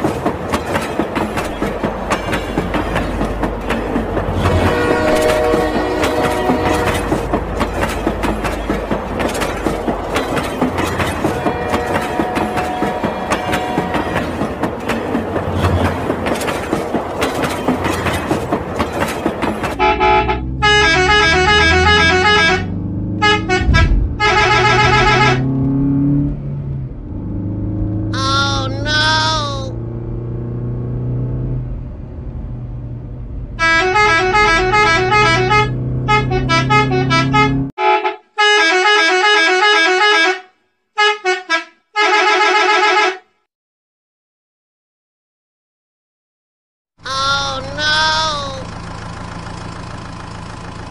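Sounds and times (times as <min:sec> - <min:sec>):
low hum: 0:23.3 - 0:27.2.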